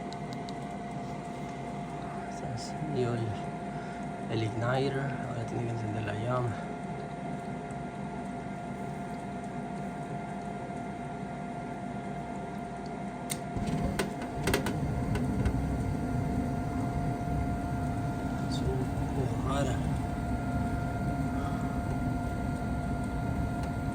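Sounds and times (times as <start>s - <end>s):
furnace inducer motor humming: 0.0s - 23.9s
gas burners rumbling: 13.3s - 23.9s
igniter clicks: 13.3s - 23.9s.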